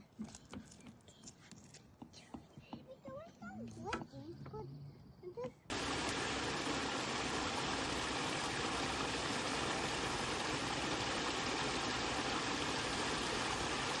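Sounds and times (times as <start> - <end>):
flowing water rushing: 5.7 - 14.0.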